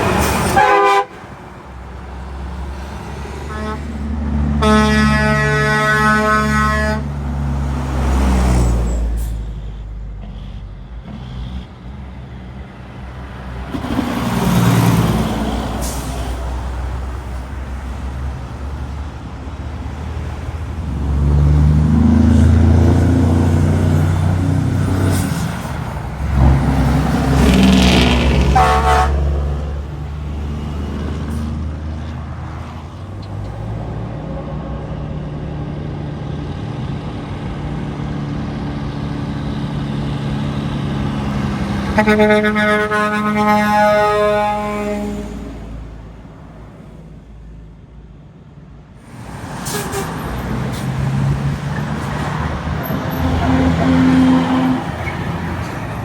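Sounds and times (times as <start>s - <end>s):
trucks passing: 0.0s - 56.0s
truck horn toot: 0.1s - 1.3s, 3.4s - 7.2s, 26.4s - 29.6s, 41.7s - 45.6s, 49.6s - 50.6s, 52.8s - 55.4s.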